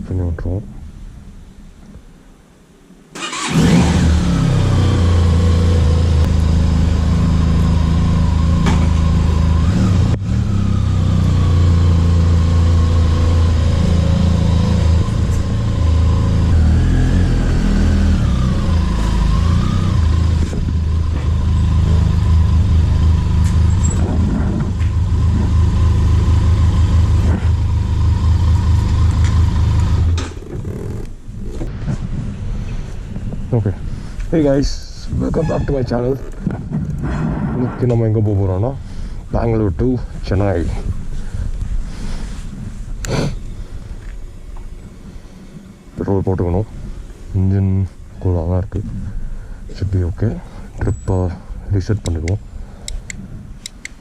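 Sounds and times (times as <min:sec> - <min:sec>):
motorcycle engine starting and idling: 0:03.2 - 0:32.0.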